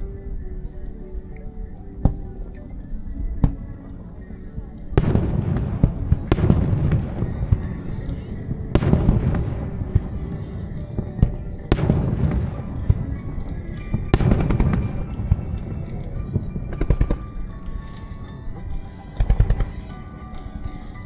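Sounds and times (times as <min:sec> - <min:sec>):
fireworks bangs with rumble: 0:05.0 - 0:17.4
fireworks crackling pops: 0:05.0 - 0:18.3.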